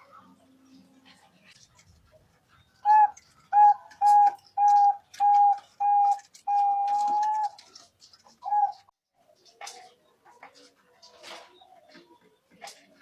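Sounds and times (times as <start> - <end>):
dove cooing: 2.8 - 8.9.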